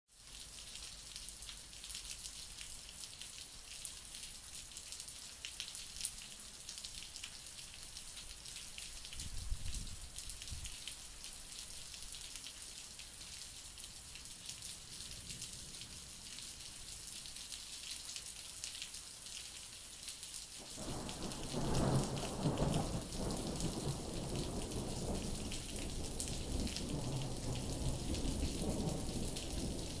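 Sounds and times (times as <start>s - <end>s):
rain falling: 0.1s - 30.0s
thunder rumbling: 20.7s - 30.0s.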